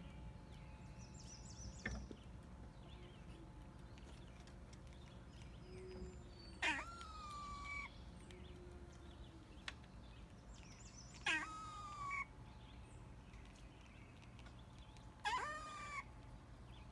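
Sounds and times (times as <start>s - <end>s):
pet animal calling: 5.7s - 9.0s, 11.1s - 12.3s, 15.2s - 16.1s.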